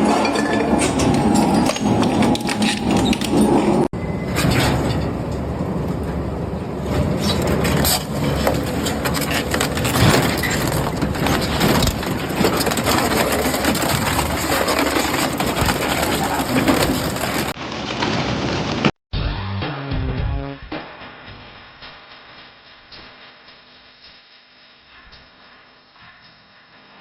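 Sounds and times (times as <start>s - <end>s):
metal shredder crushing scrap metal: 0.0s - 18.9s.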